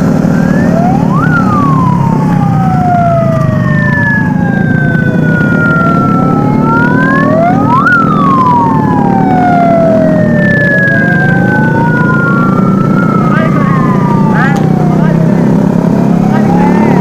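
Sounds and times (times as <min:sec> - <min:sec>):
electronic wail sirens: 0:00.0 - 0:17.0
low engine rumble: 0:00.0 - 0:17.0.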